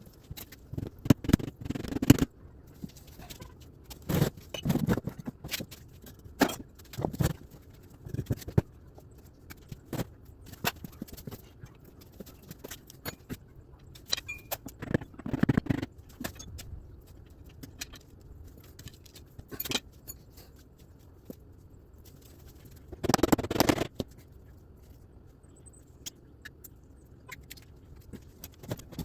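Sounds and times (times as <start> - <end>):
metal tools clinking and scraping: 14.0 - 14.8, 17.8 - 20.6.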